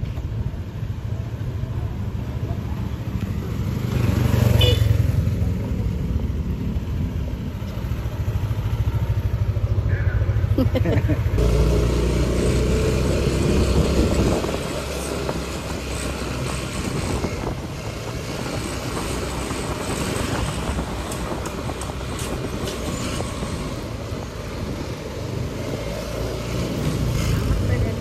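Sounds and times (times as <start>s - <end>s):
train carriages rumbling and rattling: 10.3s - 28.0s.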